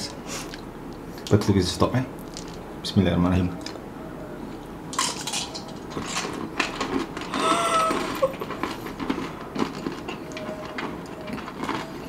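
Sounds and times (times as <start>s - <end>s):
chewing crunchy snack: 5.7s - 12.0s
person humming: 7.3s - 8.4s.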